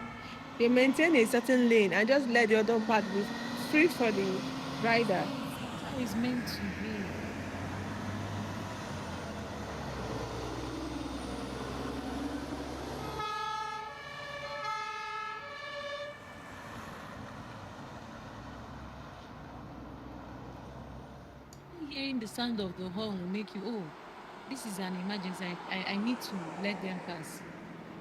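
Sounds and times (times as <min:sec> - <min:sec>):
fire engine siren: 0:00.0 - 0:19.5
fire engine engine and road noise: 0:00.0 - 0:28.0
traffic noise: 0:00.0 - 0:28.0.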